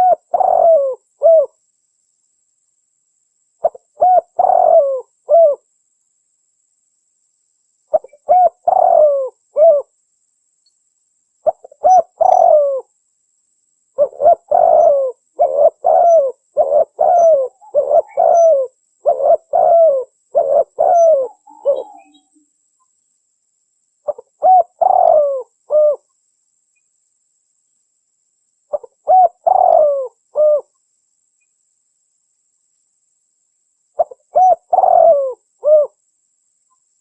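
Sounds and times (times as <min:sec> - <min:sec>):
dove cooing: 0:00.0 - 0:01.6, 0:03.6 - 0:05.6, 0:07.9 - 0:09.9, 0:11.4 - 0:12.9, 0:14.0 - 0:22.3, 0:24.1 - 0:26.1, 0:28.7 - 0:30.7, 0:34.0 - 0:36.0.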